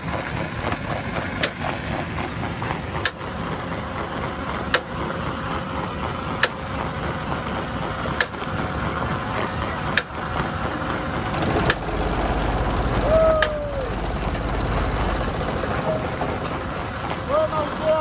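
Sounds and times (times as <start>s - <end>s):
machine engine running: 8.7s - 18.0s.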